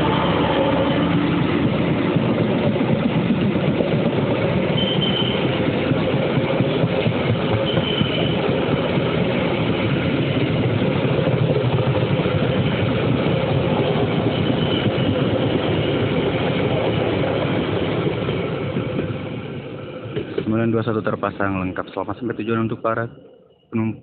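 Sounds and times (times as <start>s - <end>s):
train wheels rumbling on rails: 0.0s - 23.1s
faint high wheel squeal: 4.8s - 5.6s, 7.6s - 8.5s.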